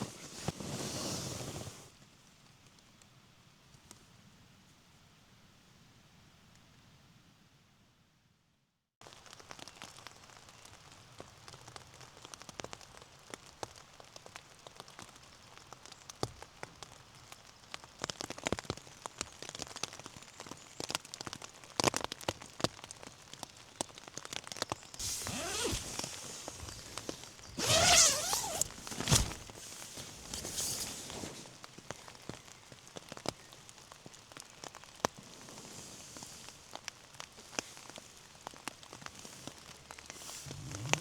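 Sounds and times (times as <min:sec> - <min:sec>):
loud rustling: 0:25.0 - 0:31.6.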